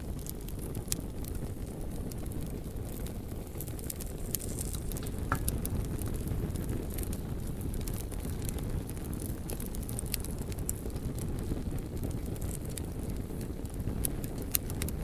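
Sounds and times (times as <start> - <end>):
fire crackling and popping: 0.0 - 15.0
low rumble of burning: 0.0 - 15.0.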